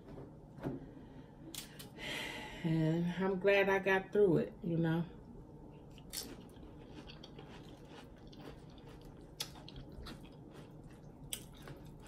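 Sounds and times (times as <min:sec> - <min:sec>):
person chewing soft food: 0:05.7 - 0:12.0.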